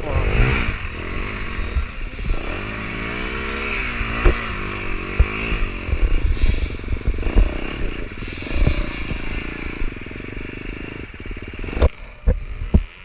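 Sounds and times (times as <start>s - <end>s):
dirt bike engine running: 0.0s - 13.0s
sharp clunks and knocks: 4.1s - 6.2s.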